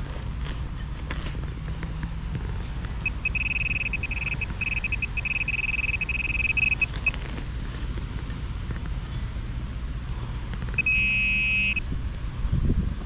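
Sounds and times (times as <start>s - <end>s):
metal detector beeping: 3.0s - 7.2s, 10.8s - 11.8s
wind rumbling on microphone: 11.8s - 13.0s.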